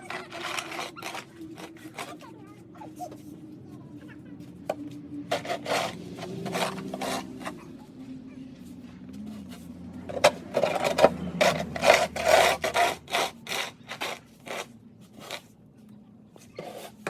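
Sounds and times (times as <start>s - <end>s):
snow shovel scraping sidewalk: 0.0s - 3.3s, 5.3s - 7.7s, 9.2s - 15.6s, 16.4s - 17.0s.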